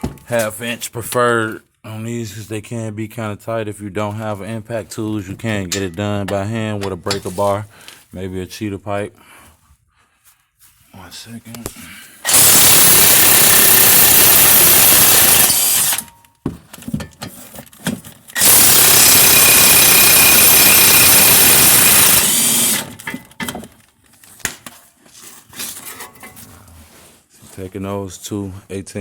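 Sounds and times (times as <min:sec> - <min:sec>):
impact wrench running: 0:12.2 - 0:16.1, 0:18.4 - 0:23.1.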